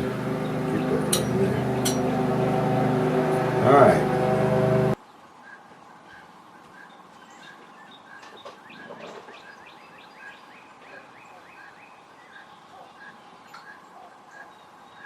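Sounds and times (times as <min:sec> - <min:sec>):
faint bird chirping: 0:05.0 - 0:15.0.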